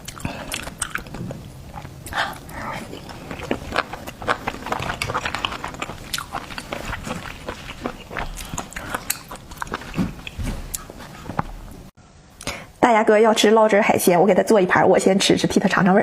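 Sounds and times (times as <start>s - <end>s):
person chewing food: 0.0s - 11.8s.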